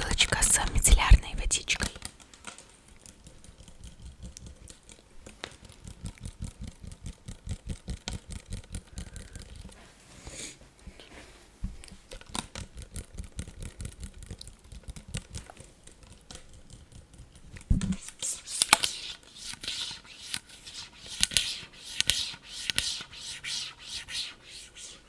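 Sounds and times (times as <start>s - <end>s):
rapid tapping on plastic bottle: 3.0s - 9.8s, 11.6s - 18.0s.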